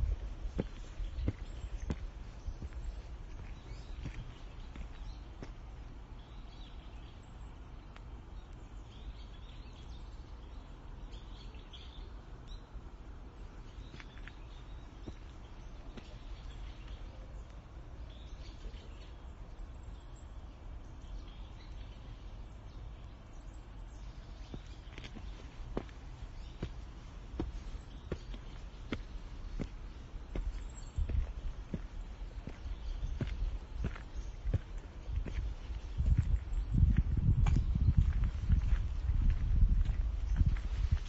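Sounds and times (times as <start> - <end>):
low background rumble: 0.0 - 41.0
bird chirps: 13.6 - 38.2.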